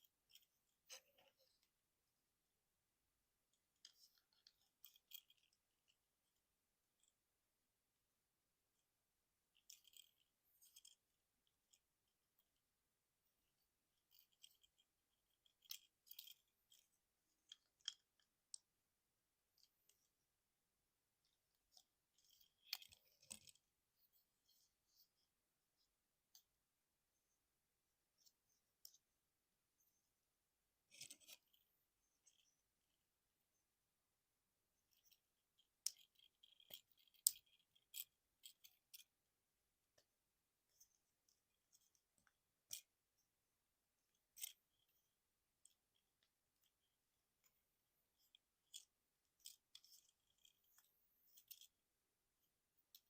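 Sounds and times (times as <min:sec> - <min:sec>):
plastic toy parts clicking: 0:03.5 - 0:06.0, 0:09.5 - 0:11.8, 0:14.0 - 0:18.7, 0:21.2 - 0:23.7, 0:30.9 - 0:31.6, 0:34.9 - 0:39.1, 0:40.7 - 0:42.9, 0:44.1 - 0:44.9, 0:48.2 - 0:51.8.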